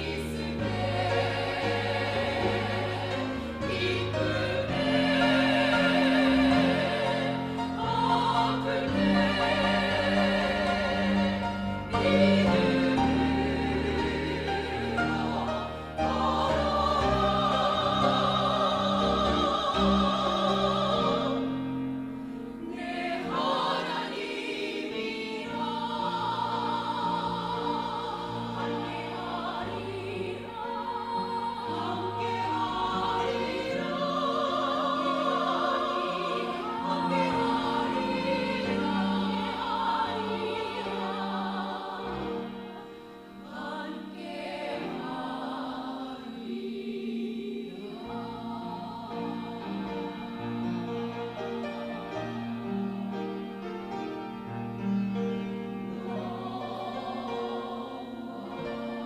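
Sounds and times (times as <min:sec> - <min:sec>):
vocal ensemble singing in harmony: 0:00.0 - 0:59.0.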